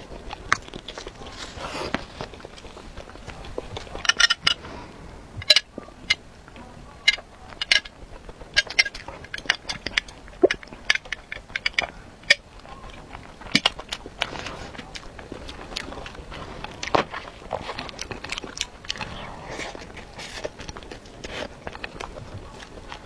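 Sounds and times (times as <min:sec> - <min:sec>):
chewing and swallowing: 0:00.0 - 0:23.0
wet mouth clicks and smacks: 0:08.5 - 0:12.4.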